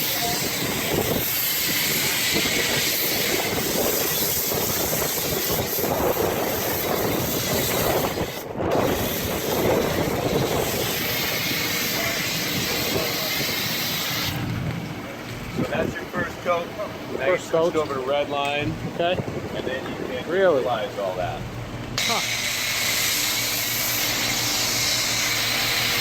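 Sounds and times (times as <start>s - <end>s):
pressure washer spraying: 0.0s - 14.5s, 22.0s - 26.0s.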